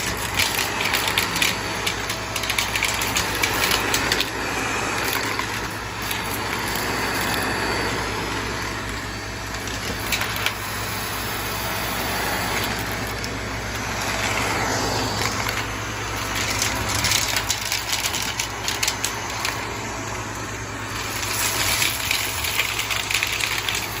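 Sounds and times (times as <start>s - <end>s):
coins clattering: 0.0s - 4.3s, 15.1s - 19.6s, 21.0s - 24.0s
vacuum cleaner running: 0.0s - 24.0s.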